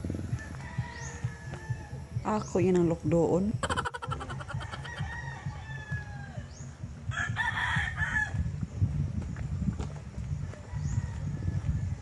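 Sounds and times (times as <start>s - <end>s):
distant rooster crowing: 0.3s - 2.1s, 3.6s - 8.4s, 10.4s - 12.0s.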